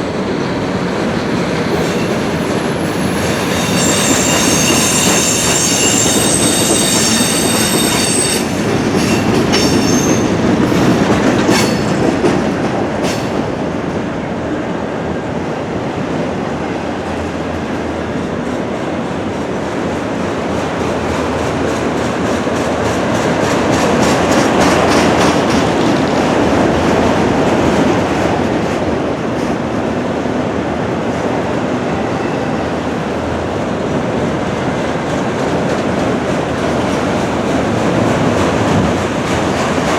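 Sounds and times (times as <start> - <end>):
freight train rumbling past: 0.0 - 39.9
train wheels squealing: 1.4 - 12.0.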